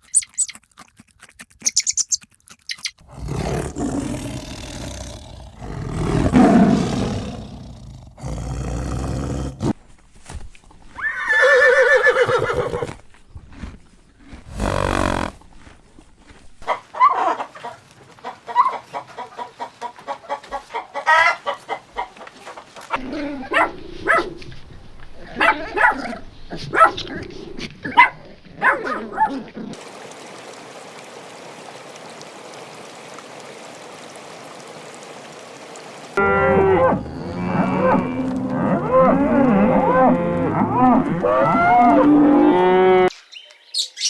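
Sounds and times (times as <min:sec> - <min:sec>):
deep lowing calls: 0:03.1 - 0:09.7, 0:14.5 - 0:15.4.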